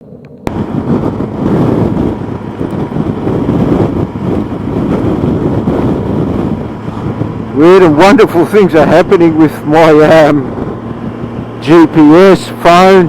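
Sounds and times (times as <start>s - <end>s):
road noise: 0.0s - 13.0s
wind buffeting microphone: 0.4s - 13.0s
motorcycle engine: 0.5s - 13.0s.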